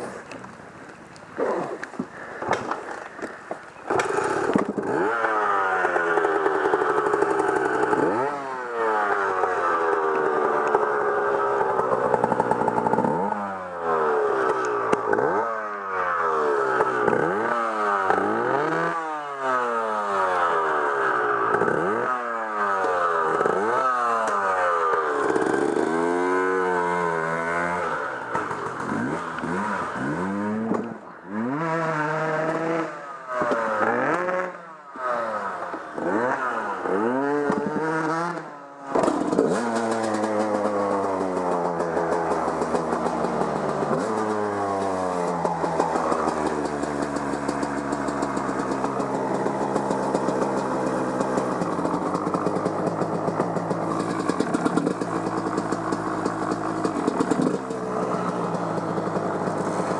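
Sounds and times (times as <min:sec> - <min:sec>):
off-road vehicle engine revving: 0:03.9 - 0:59.9.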